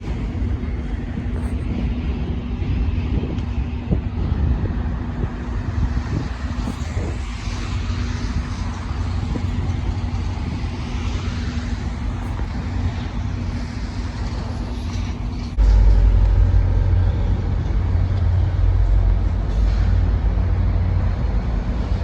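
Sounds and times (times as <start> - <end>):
train mechanical hum: 0.0 - 22.0
train rumbling: 0.0 - 22.0.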